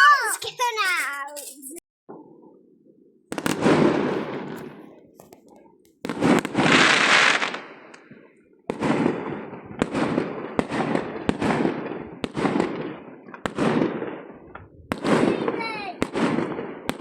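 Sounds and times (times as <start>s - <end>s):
fireworks bangs and crackles: 3.3s - 17.0s.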